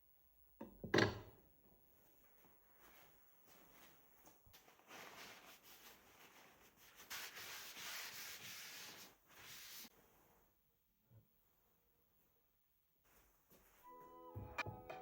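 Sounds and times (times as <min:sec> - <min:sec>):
faint rubbing: 0:04.6 - 0:10.5.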